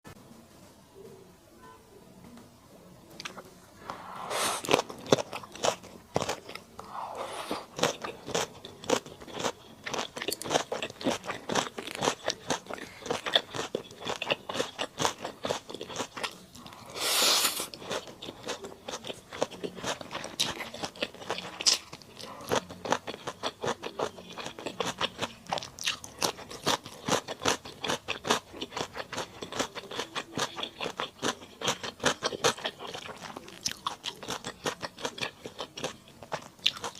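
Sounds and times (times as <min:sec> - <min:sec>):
close chewing and crunching: 0:03.2 - 0:36.9.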